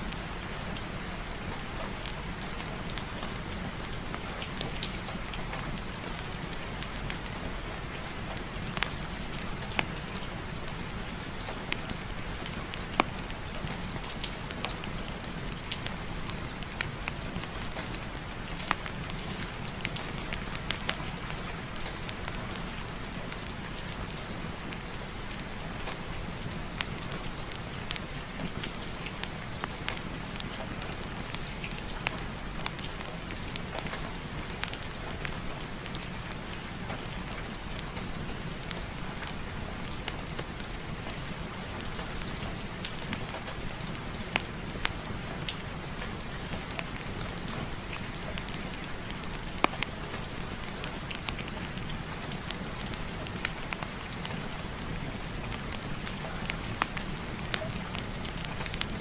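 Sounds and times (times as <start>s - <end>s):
fireplace fire crackling: 0.0s - 59.0s
heavy rain on a surface: 0.0s - 59.0s.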